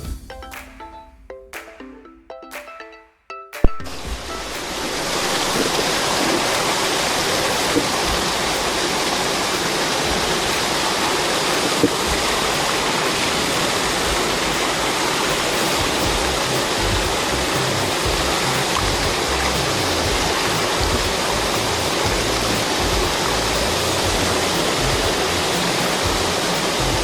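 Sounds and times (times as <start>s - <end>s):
water flowing: 3.8s - 27.0s.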